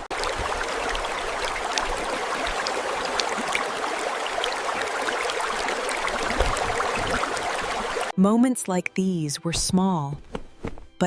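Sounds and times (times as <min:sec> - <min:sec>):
stream babbling: 0:00.0 - 0:08.1.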